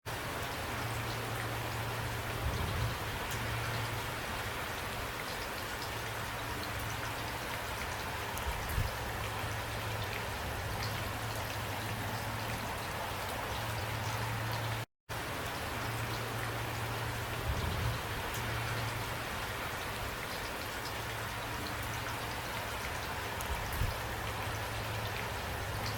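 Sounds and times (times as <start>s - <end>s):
steady rain: 0.0s - 25.9s
raindrops ticking: 18.0s - 25.9s.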